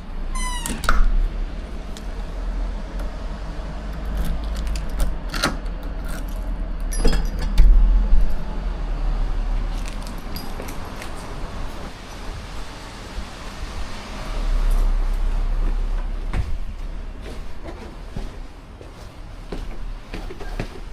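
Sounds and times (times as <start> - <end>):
low rumble: 5.8 - 18.1
clicks and metallic clinks: 9.8 - 11.2.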